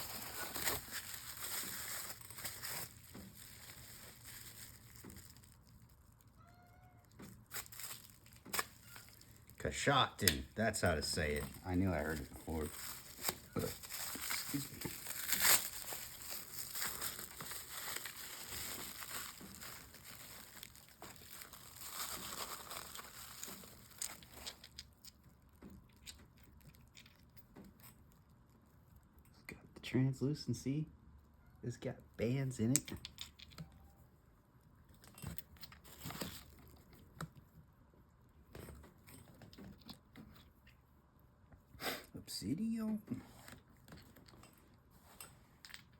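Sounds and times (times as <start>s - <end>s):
packaging rustling: 0.0s - 6.3s, 7.0s - 9.6s, 10.6s - 25.2s, 35.3s - 37.0s
wrapping material crinkling: 0.0s - 9.6s, 10.8s - 27.4s, 35.3s - 37.0s.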